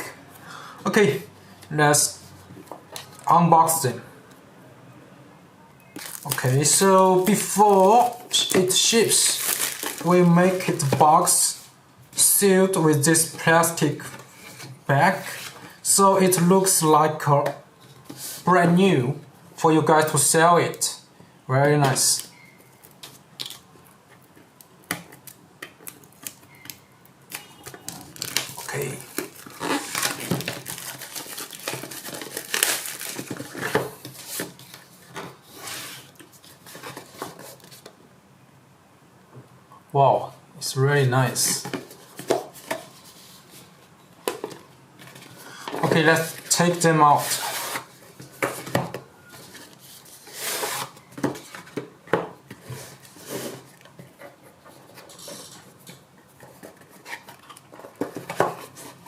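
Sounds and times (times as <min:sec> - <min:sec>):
plastic wrapping crackling: 0:06.0 - 0:10.8, 0:27.3 - 0:34.9
packaging rustling: 0:06.0 - 0:11.0, 0:27.3 - 0:37.9.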